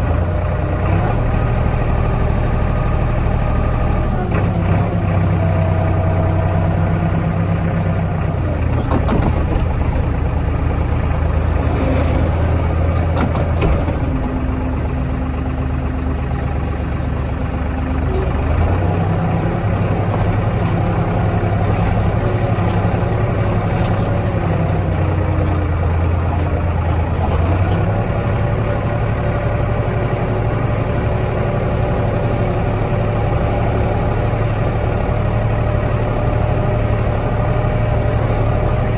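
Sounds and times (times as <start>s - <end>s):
tractor diesel engine running: 0.0s - 38.9s
knocks and clatters: 8.6s - 15.4s.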